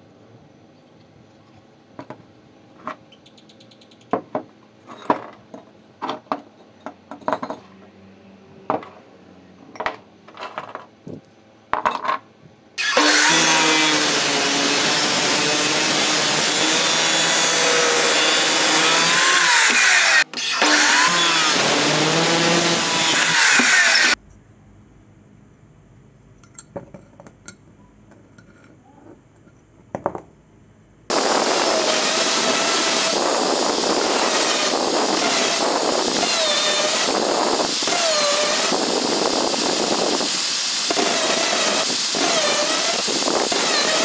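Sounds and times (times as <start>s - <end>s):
tools and parts knocking: 4.0s - 7.6s, 9.8s - 10.9s, 26.4s - 28.6s
power tool running: 12.8s - 24.2s, 31.1s - 44.0s.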